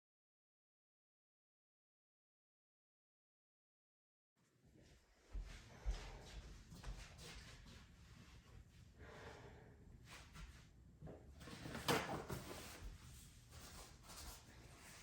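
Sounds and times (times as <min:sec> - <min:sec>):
faint room noise: 0:04.4 - 0:15.0.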